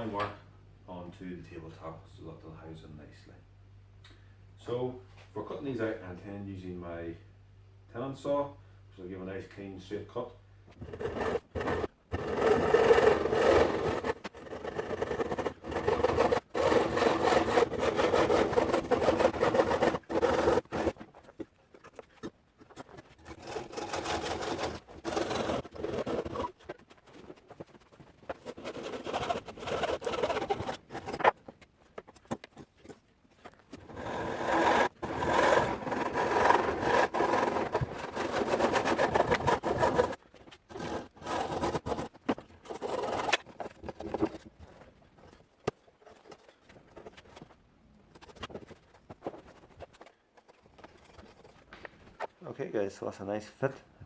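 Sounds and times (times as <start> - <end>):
hand saw cutting wood: 10.8 - 21.0, 22.9 - 27.7, 28.3 - 31.3, 33.8 - 44.4.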